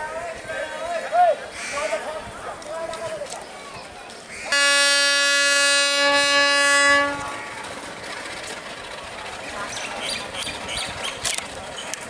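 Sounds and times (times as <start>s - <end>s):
train rumbling along rails: 0.0s - 12.0s
locomotive horn blast: 4.5s - 7.8s.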